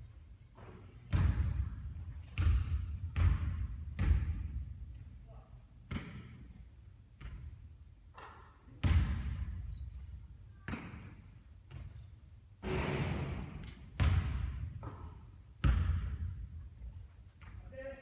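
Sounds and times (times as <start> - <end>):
basketball bouncing thuds: 1.1 - 4.6, 5.9 - 6.4, 8.8 - 9.6, 12.6 - 16.5.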